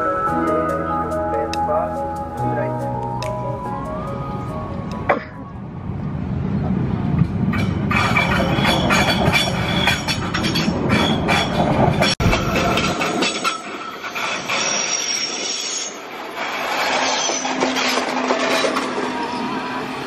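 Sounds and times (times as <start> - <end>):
train wheels rumbling and clacking: 6.6 - 20.0
high-pitched wheel squeal: 12.5 - 19.8.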